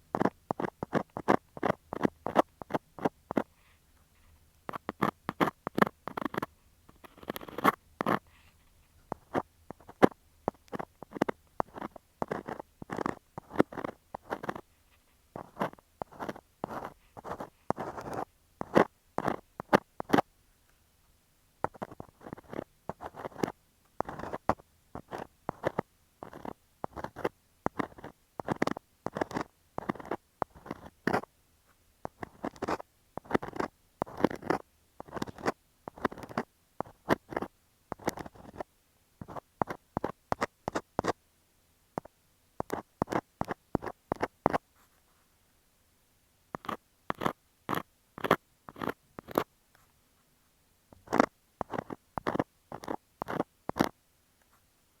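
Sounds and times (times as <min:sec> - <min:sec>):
scraping on earphone microphone: 0:04.2 - 0:20.3, 0:21.7 - 0:31.3, 0:32.1 - 0:41.2, 0:42.6 - 0:45.1, 0:46.6 - 0:49.5, 0:51.0 - 0:54.0.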